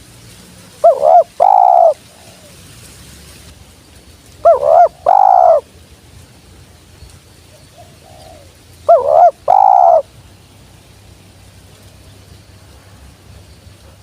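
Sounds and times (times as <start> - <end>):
dove cooing: 0.8 - 2.6, 4.4 - 5.7, 7.5 - 10.1.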